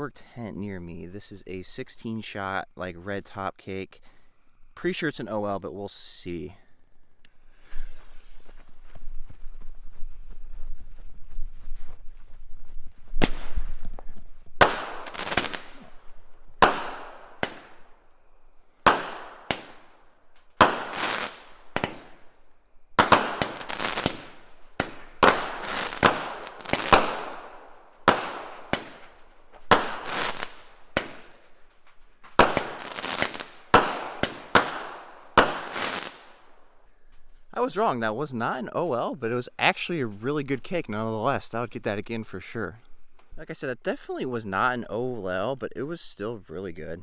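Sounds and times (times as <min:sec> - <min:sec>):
firework cake firing sharp bangs: 0:13.2 - 0:13.8, 0:14.6 - 0:18.0, 0:18.7 - 0:31.6, 0:32.2 - 0:36.5.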